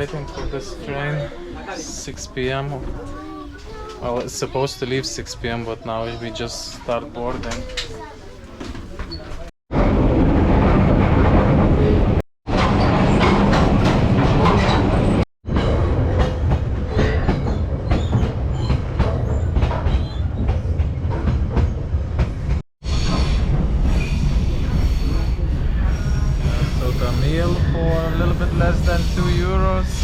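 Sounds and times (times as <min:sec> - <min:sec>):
train rumbling: 0:09.7 - 0:30.0.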